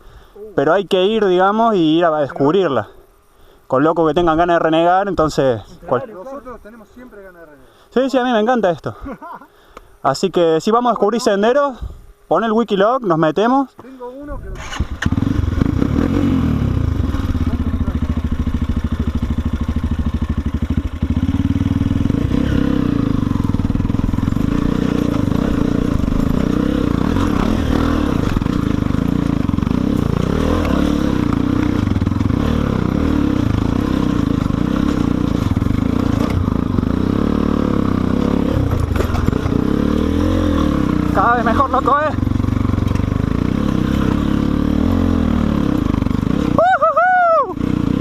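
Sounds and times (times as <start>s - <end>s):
dirt bike engine revving: 14.5s - 48.0s.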